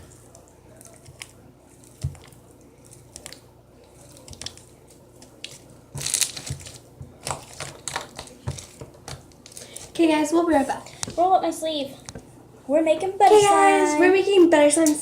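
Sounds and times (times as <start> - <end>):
slime crackling and squishing: 0.0 - 10.0
slime rustling: 0.0 - 11.2.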